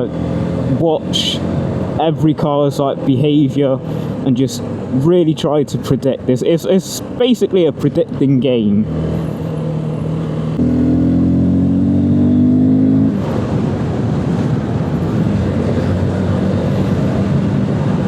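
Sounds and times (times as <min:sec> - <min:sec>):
wind and road noise: 0:00.0 - 0:18.0
motorcycle engine accelerating: 0:08.8 - 0:18.0.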